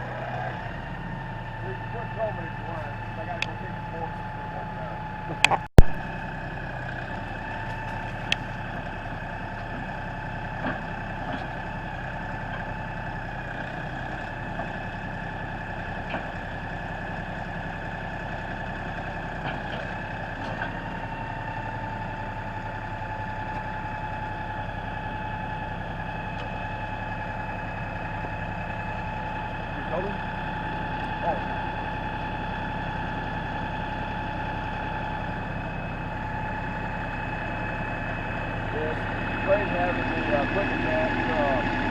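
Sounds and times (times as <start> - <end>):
diesel engine idling: 0.0 - 41.9
steady whine: 36.0 - 41.9.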